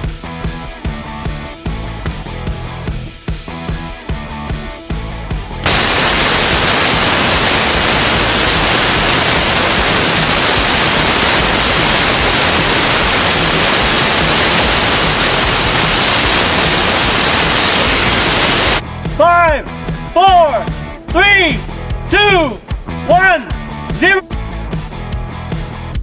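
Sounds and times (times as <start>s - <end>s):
rocket engine roaring: 5.6s - 18.8s.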